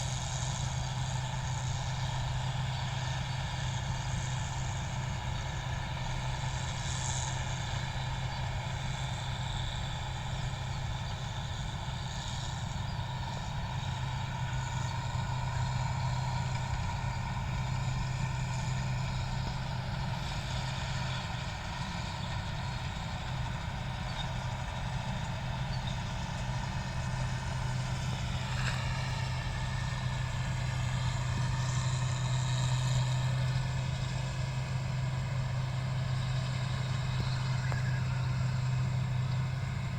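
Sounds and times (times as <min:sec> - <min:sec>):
combine harvester engine hum: 0:00.0 - 0:39.9
whining machine tones: 0:33.1 - 0:39.9.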